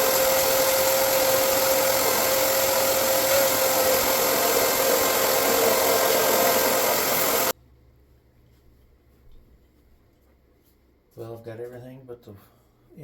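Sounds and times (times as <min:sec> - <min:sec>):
electric motor whining: 0:00.0 - 0:07.5
loud hiss: 0:00.0 - 0:07.5.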